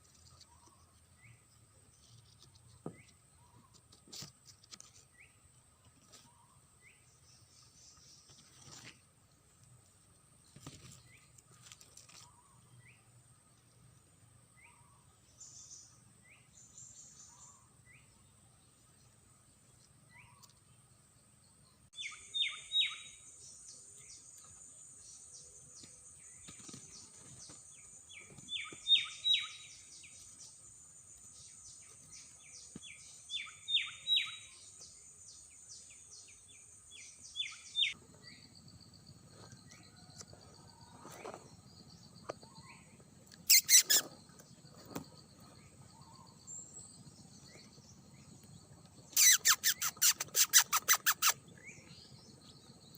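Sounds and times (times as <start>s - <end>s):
bird rising chirps: 43.4s - 44.3s, 49.0s - 52.3s.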